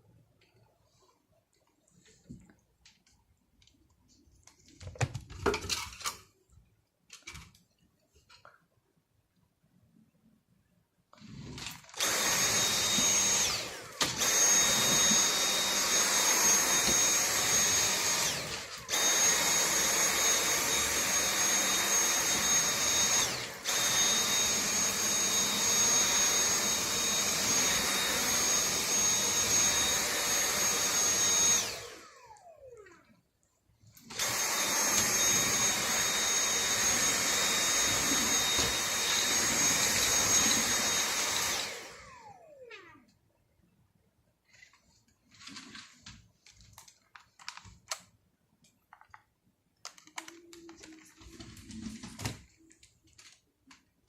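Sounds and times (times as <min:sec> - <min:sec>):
vacuum cleaner running: 0:11.2 - 0:33.1, 0:34.0 - 0:43.0.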